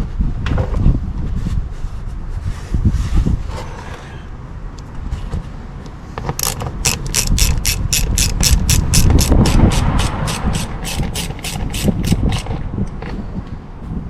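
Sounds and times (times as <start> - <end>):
socket ratchet clicking: 6.3 - 12.6.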